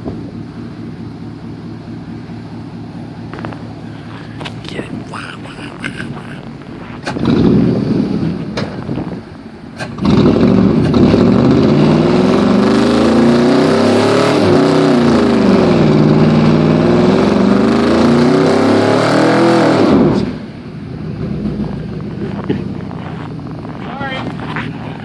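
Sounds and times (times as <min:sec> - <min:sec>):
car engine idling: 0:00.0 - 0:12.8, 0:19.9 - 0:25.0
car engine revving: 0:00.0 - 0:25.0.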